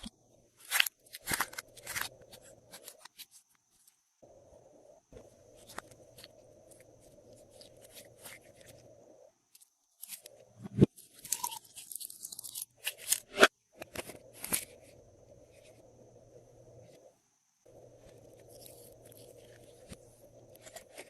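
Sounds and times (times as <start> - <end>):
low steady hum: 13.8 - 21.0.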